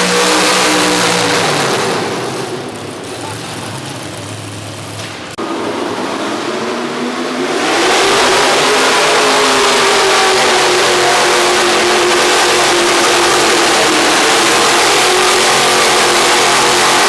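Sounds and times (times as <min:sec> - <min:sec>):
tractor engine revving hard: 0:00.0 - 0:17.0.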